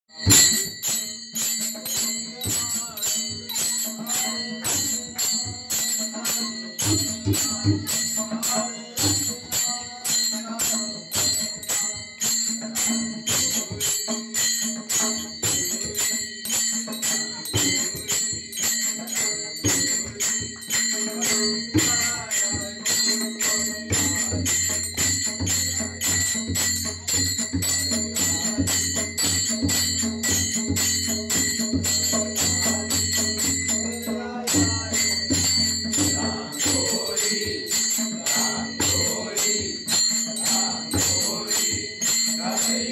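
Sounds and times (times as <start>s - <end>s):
hand cymbals struck rhythmically: 0.0s - 42.9s.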